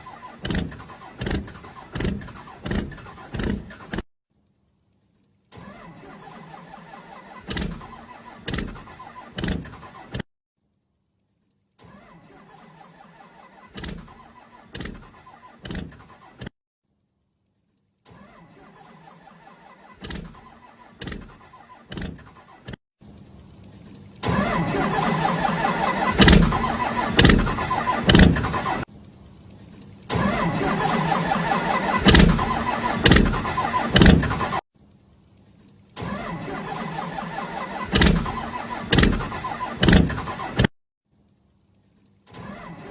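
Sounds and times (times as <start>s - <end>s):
loud exhaust pops: 0.0s - 4.1s, 11.8s - 16.6s, 18.1s - 22.8s, 23.5s - 28.9s, 30.0s - 34.6s, 36.0s - 40.7s.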